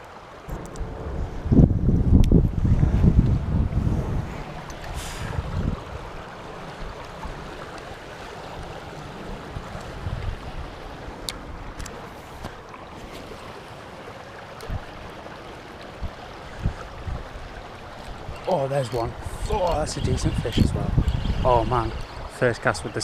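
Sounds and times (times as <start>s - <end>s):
river water flowing: 0.0s - 23.0s
wind on microphone: 0.4s - 7.6s, 8.5s - 12.6s, 16.0s - 18.5s, 19.1s - 22.4s.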